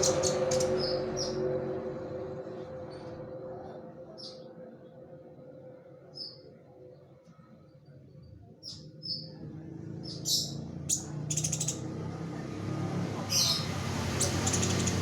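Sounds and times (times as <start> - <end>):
bird chirps and trills: 0.0 - 1.5, 10.0 - 12.0, 13.3 - 15.0
low rumble: 0.0 - 6.1.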